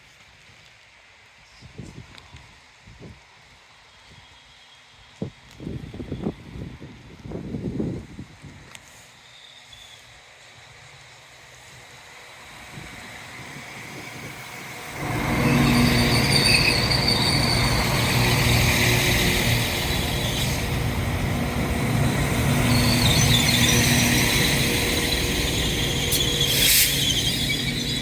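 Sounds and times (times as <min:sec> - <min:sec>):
wheels squealing on rails: 0:08.8 - 0:10.7, 0:11.4 - 0:28.0
diesel train engine running: 0:11.2 - 0:28.0.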